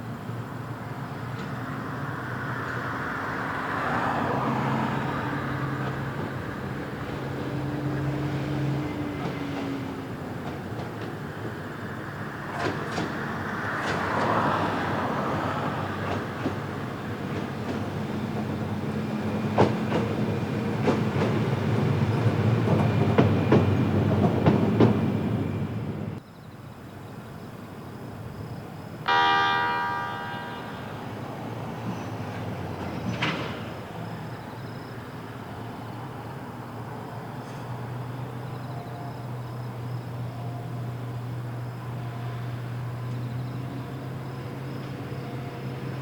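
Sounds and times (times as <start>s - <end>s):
freight train running past: 0.0s - 26.2s, 27.2s - 46.0s
wheels clacking over rail joints: 5.6s - 26.2s, 29.1s - 36.3s
loud ringing tone: 29.1s - 31.3s.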